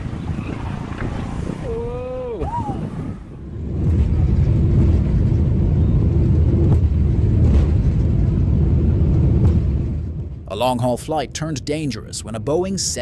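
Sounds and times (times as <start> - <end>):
aircraft landing rumble: 0.0 - 13.0.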